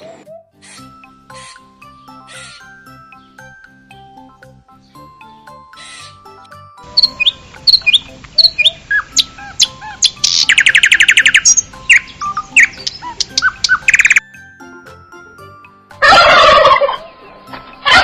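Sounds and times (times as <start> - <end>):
soft background music: 0.0 - 18.0
songbird singing: 1.4 - 6.2, 6.8 - 14.3.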